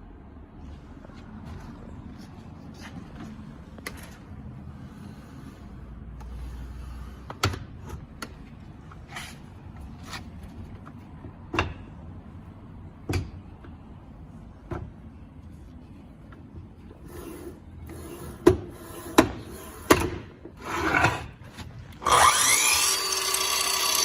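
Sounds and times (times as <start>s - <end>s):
saw mechanism sliding and scraping: 4.0s - 7.3s, 8.9s - 10.4s, 17.0s - 24.0s.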